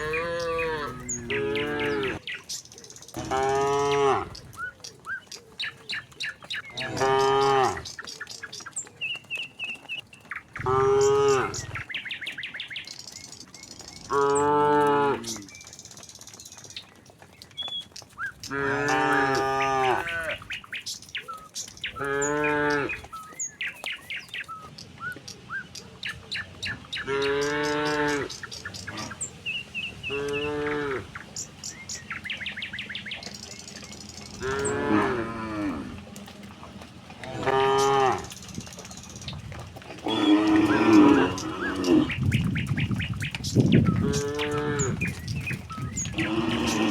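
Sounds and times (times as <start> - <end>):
cattle mooing: 0.0 - 2.2, 3.2 - 4.4, 6.8 - 7.9, 10.6 - 11.7, 14.1 - 15.5, 18.5 - 20.5, 22.0 - 23.1, 27.0 - 29.2, 30.1 - 31.2, 34.3 - 38.4, 39.9 - 42.2, 44.0 - 45.2, 46.0 - 46.9.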